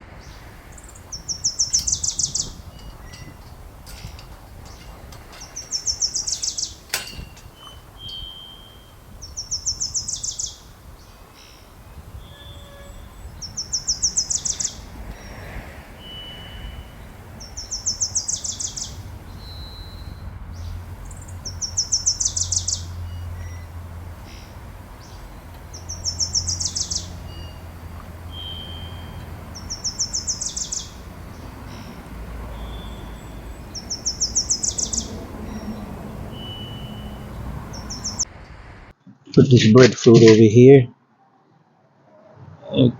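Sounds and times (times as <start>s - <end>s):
songbird trilling: 0.2s - 38.3s
single whistled bird notes: 5.4s - 10.6s, 16.0s - 25.2s, 25.8s - 31.0s, 32.5s - 38.2s.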